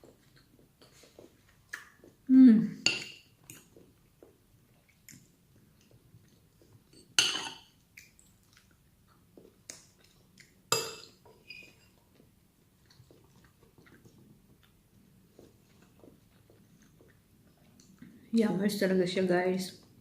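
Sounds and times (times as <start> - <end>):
cutlery clinking on a plate: 7.0 - 7.7, 10.7 - 12.0.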